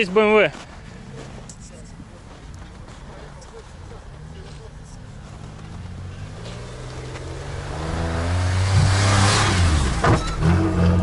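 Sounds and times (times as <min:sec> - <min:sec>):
suv engine revving: 0:03.5 - 0:11.0.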